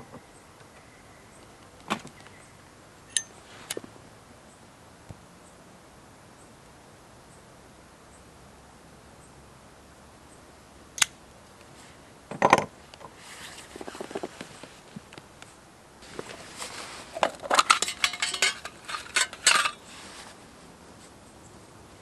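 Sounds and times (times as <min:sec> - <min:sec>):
metal scraping: 0:16.0 - 0:20.3
metal cookware clattering: 0:17.4 - 0:19.8.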